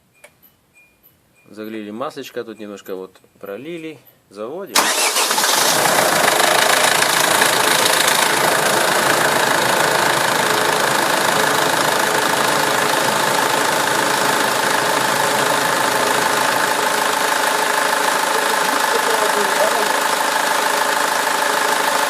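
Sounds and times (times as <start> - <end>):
car engine idling: 4.8 - 22.0.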